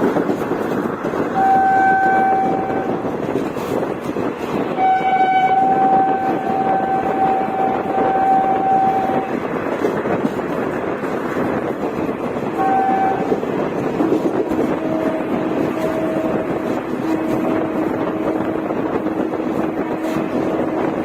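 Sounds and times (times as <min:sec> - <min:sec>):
train rumbling: 0:00.0 - 0:21.0
locomotive horn blasts: 0:01.3 - 0:03.2, 0:04.7 - 0:09.4, 0:12.5 - 0:13.5, 0:14.5 - 0:21.0.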